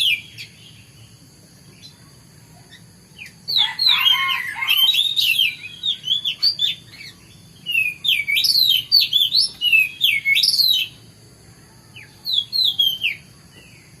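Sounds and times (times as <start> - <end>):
bird singing sweeping whistles: 0.0 - 0.8, 3.2 - 11.0, 12.0 - 14.0.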